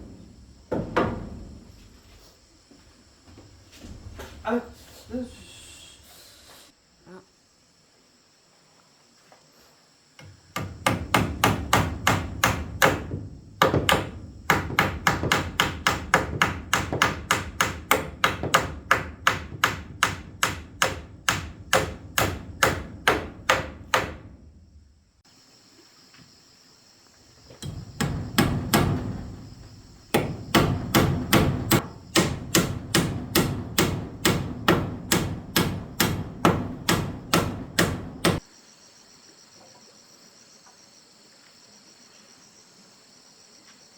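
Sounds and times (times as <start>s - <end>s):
hammer blows: 27.6s - 38.5s.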